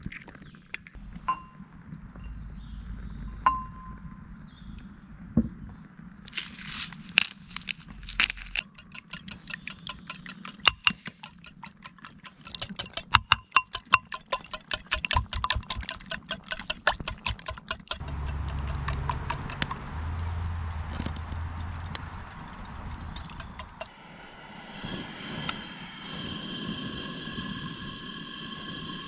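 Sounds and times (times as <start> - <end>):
steady low hum: 1.0 - 5.4, 18.0 - 29.0
rapid rhythmic clicking: 8.6 - 23.9.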